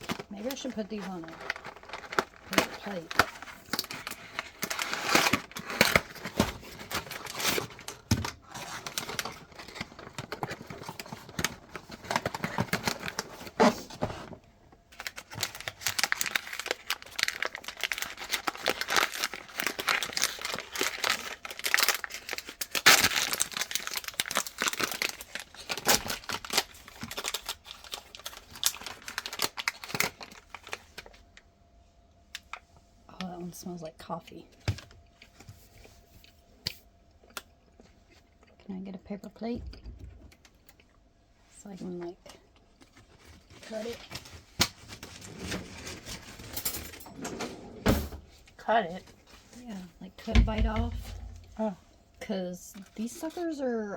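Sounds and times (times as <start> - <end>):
plastic wrappers crinkling and tearing: 0.0 - 31.4, 40.3 - 47.0.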